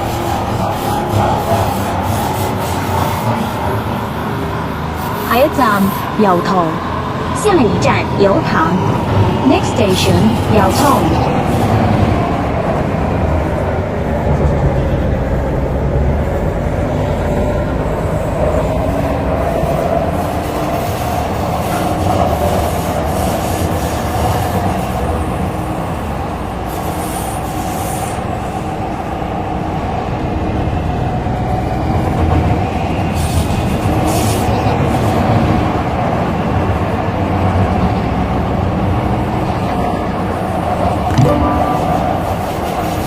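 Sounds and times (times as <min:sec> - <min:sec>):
rail rumble: 0:00.0 - 0:35.8, 0:36.4 - 0:43.0
high-pitched whine: 0:41.1 - 0:43.0.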